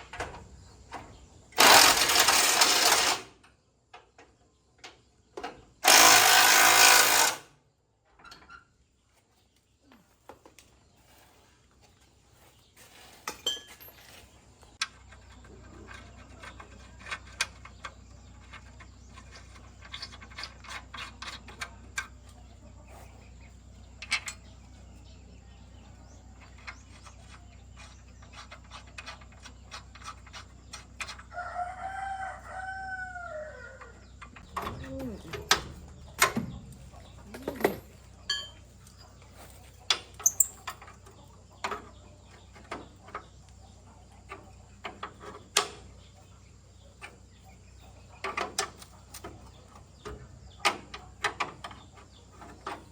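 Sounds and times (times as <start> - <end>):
power tool burst: 1.6 - 3.3, 5.8 - 7.4
hand tools clicking and knocking: 13.2 - 22.2, 26.4 - 31.3, 34.0 - 43.5, 48.2 - 52.9
rooster crowing: 31.3 - 34.0.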